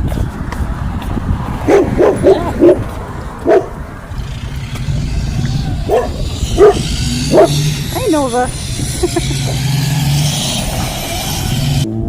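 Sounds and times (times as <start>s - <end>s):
dog barking: 1.7s - 2.8s, 3.4s - 3.8s, 5.9s - 7.6s.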